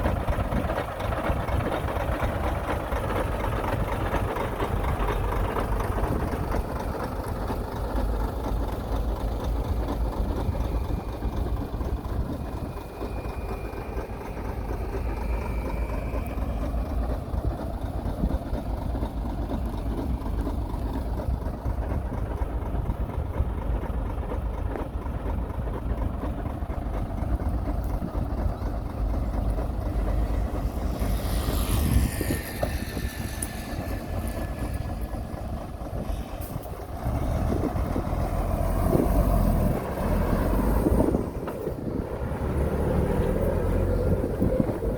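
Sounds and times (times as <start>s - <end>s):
diesel machinery engine rumble: 0.0s - 44.9s
high metallic squeal: 30.9s - 35.3s.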